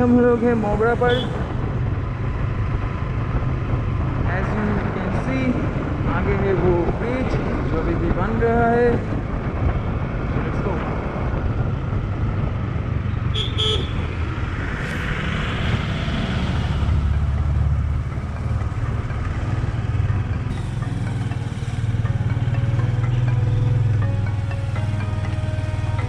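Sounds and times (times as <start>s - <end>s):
wind noise: 0.0s - 20.5s
road noise: 0.0s - 26.0s
motorcycle engine running: 16.0s - 26.0s.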